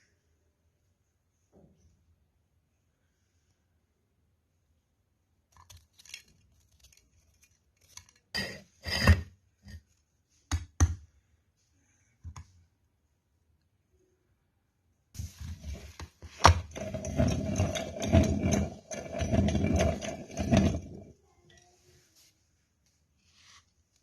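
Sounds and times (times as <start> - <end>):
metal crunches and clanks: 16.5 - 21.1.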